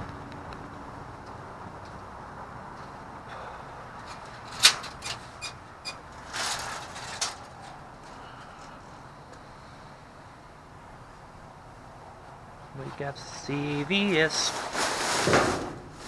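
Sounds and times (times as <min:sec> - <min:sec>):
scraping rustle: 0:04.0 - 0:08.8, 0:12.7 - 0:16.0.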